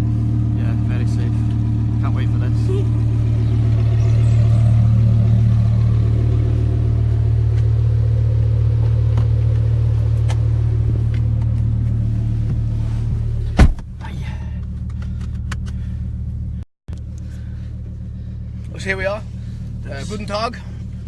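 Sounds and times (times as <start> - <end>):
car engine deep drone: 0.0 - 21.0
loud sharp thump: 13.5 - 13.9.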